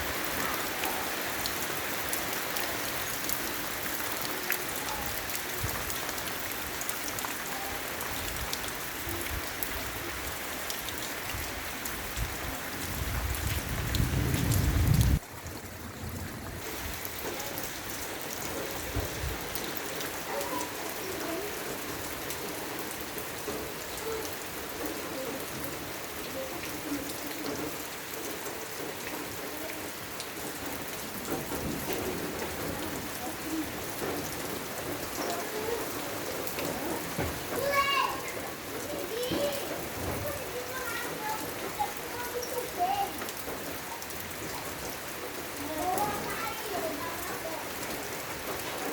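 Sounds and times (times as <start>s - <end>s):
heavy rain falling: 0.0s - 48.9s
thunder rumbling: 12.1s - 17.1s.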